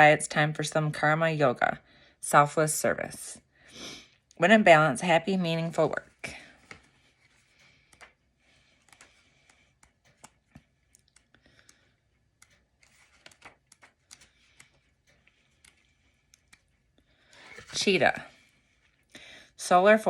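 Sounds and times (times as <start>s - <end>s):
paper rustling: 6.3s - 19.0s.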